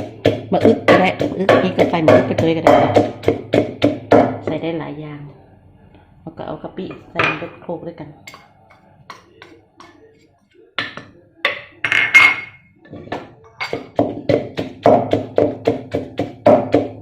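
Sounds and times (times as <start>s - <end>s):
pestle pounding in a mortar: 0.0s - 4.6s, 12.9s - 17.0s.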